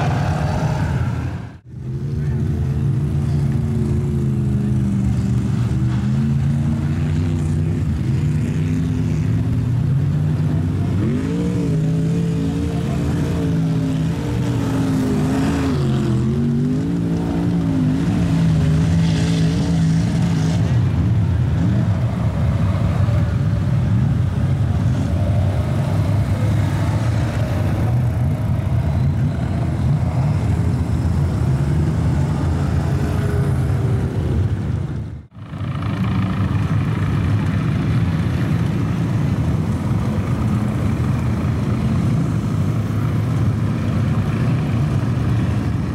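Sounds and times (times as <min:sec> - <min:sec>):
truck engine revving: 0:00.0 - 0:22.7.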